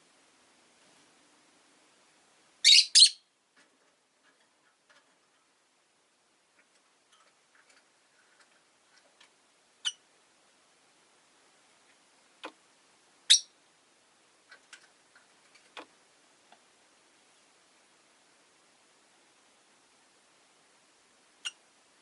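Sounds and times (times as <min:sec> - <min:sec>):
lovebirds chirping: 0:02.6 - 0:03.3, 0:09.8 - 0:10.0, 0:13.2 - 0:13.6
faint ticks and clicks: 0:14.4 - 0:16.7.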